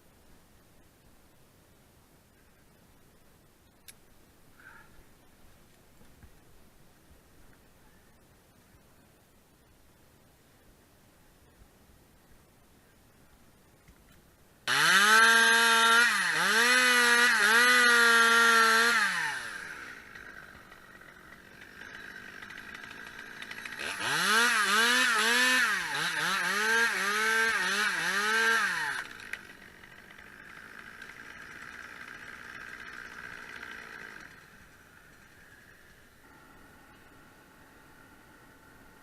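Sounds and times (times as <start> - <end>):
chainsaw revving and idling: 14.6 - 39.0.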